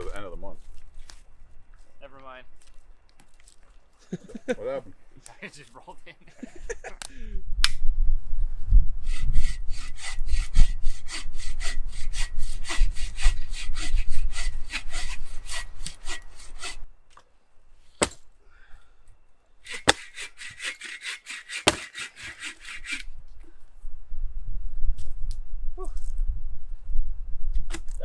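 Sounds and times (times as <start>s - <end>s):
hand saw cutting wood: 9.0s - 16.8s, 19.6s - 23.1s
sharp knocks: 21.6s - 22.1s.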